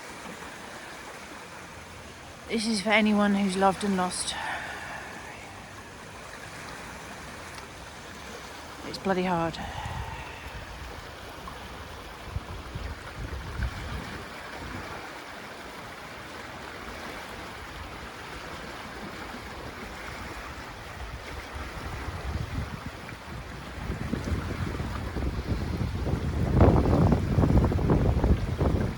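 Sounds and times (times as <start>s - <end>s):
river rushing: 0.0s - 28.9s
wind buffeting microphone: 9.5s - 15.2s, 16.9s - 28.9s.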